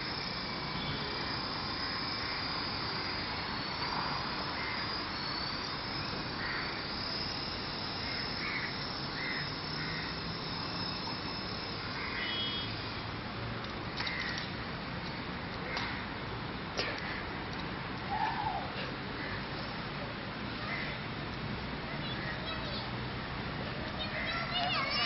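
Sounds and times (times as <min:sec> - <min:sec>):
toy helicopter motor whirring: 0:00.0 - 0:14.6, 0:23.8 - 0:25.0.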